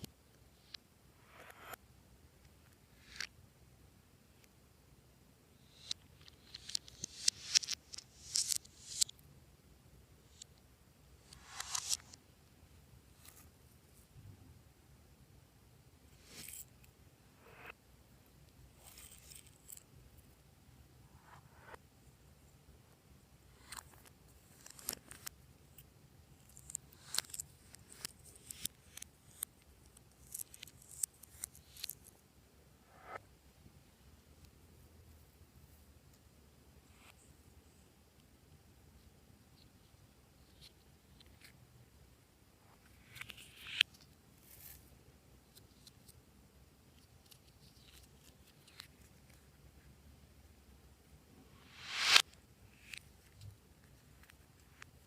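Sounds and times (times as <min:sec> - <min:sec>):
sticky clicks: 0:05.7 - 0:09.1, 0:11.3 - 0:12.2.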